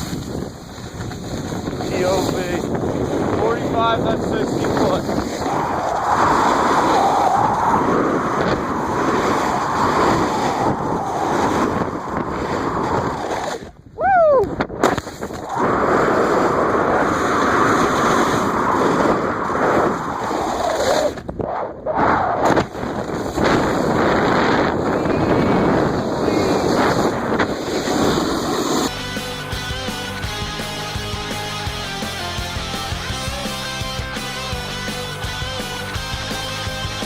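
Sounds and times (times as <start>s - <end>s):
snowboard sliding over snow: 0.0s - 13.8s, 14.8s - 37.0s
wind on microphone: 0.0s - 28.9s.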